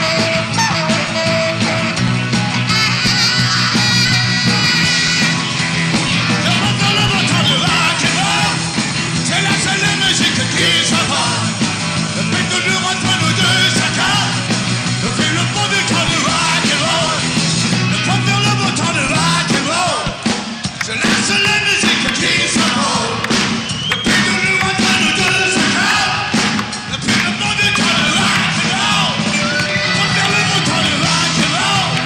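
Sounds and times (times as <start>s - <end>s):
live rock band playing: 0.0s - 32.0s
man singing loudly: 6.3s - 11.6s, 12.2s - 20.2s, 20.8s - 23.2s, 24.0s - 32.0s.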